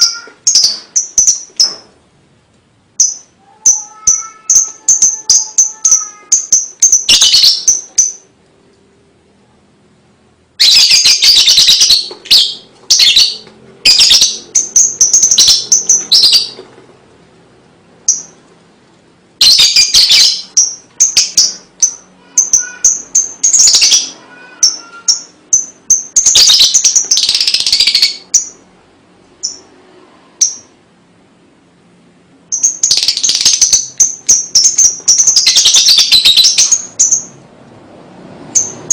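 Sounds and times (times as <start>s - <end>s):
lovebird chattering trills: 0.0s - 1.8s, 3.0s - 8.3s, 10.6s - 16.6s, 19.4s - 28.6s, 32.5s - 37.4s.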